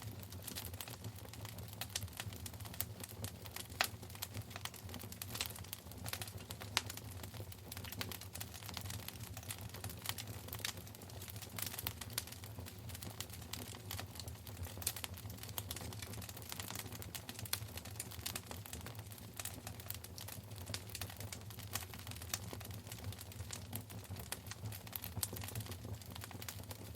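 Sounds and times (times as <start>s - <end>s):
wood fire crackling: 0.0s - 26.9s.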